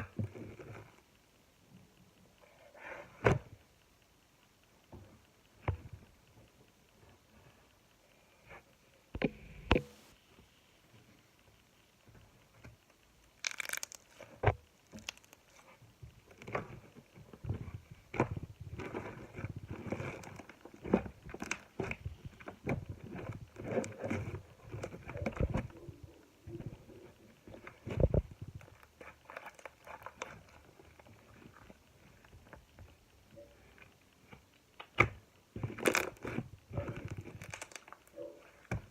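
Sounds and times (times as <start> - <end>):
slime squelching and popping: 13.4 - 15.8.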